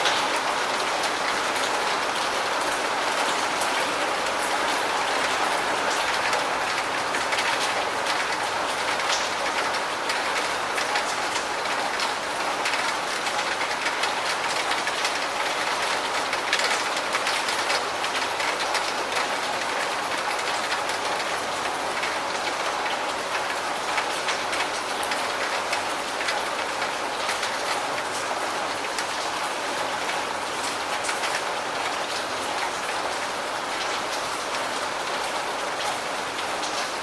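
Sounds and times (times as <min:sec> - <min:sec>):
steady rain hiss: 0:00.0 - 0:37.0
raindrop ticks: 0:03.7 - 0:29.3.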